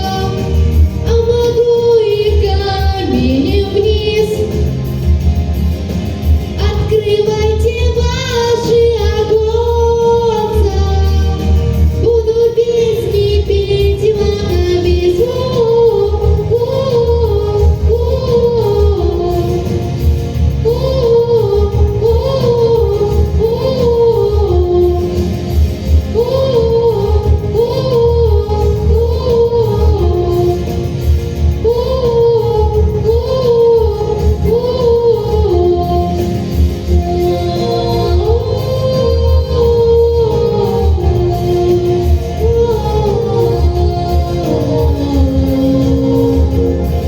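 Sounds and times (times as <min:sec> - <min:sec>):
pop backing track with bass beat: 0:00.0 - 0:47.0
wordless singing: 0:20.6 - 0:47.0.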